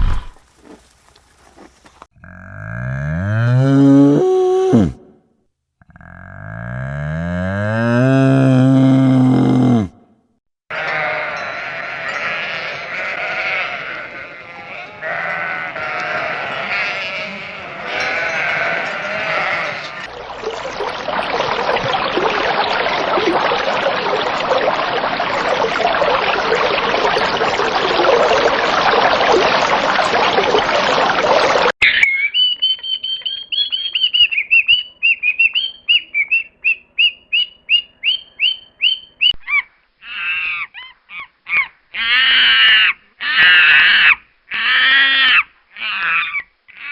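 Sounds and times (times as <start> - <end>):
dense noisy animal chatter: 10.7 - 20.1
pitched animal calls: 10.7 - 20.1, 39.4 - 46.9.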